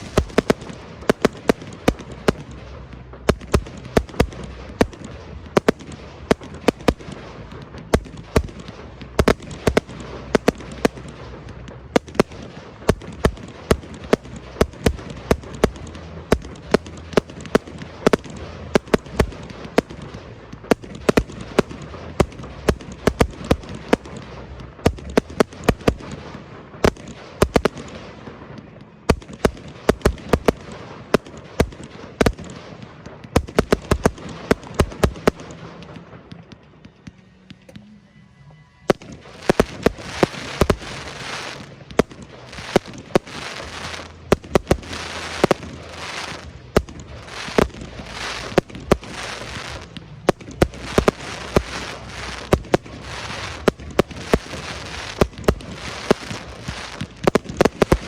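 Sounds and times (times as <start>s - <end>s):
steady rumble: 0.0s - 58.0s
firework shell bursts and cracks: 38.9s - 58.0s.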